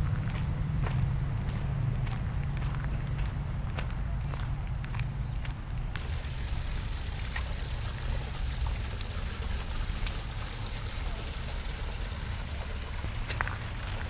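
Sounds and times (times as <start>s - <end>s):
running water rushing: 6.0s - 14.0s.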